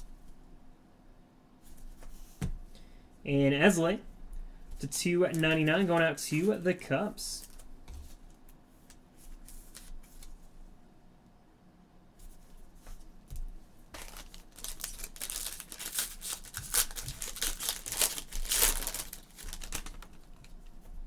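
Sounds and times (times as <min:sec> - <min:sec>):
packaging crinkling and tearing: 0:14.0 - 0:20.7.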